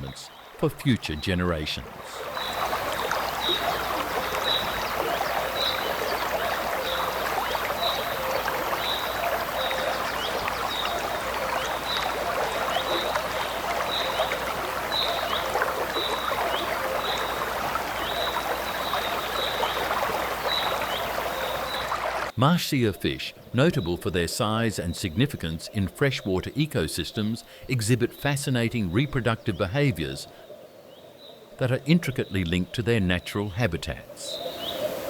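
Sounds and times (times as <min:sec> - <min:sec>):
river water rushing: 0:01.8 - 0:22.4.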